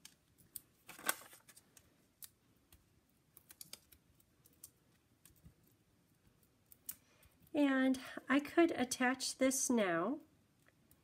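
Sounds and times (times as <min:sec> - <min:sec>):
foam pieces peeled and pressed: 0:00.0 - 0:07.0.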